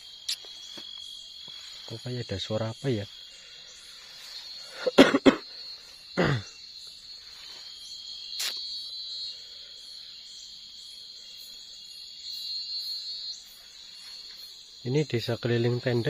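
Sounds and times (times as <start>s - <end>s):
shrill chorus of night insects: 0.0s - 16.0s
single sharp click: 8.4s - 8.6s.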